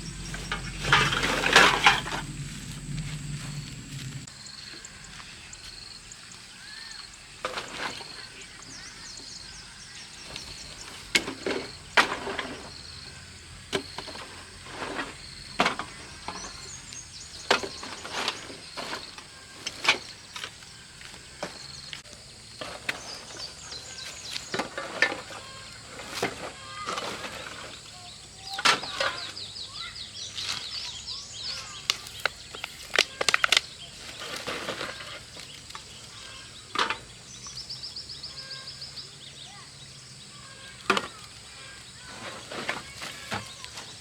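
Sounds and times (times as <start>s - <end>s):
sharp knocks and clatters: 0.0s - 4.3s.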